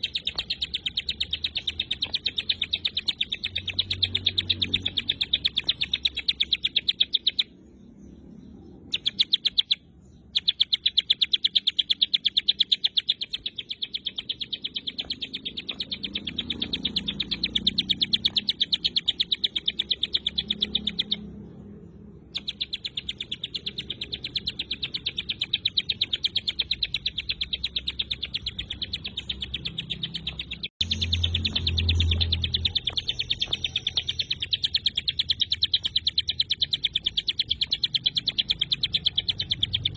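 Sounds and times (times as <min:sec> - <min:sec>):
bird singing rapid high chirps: 0:00.0 - 0:39.9.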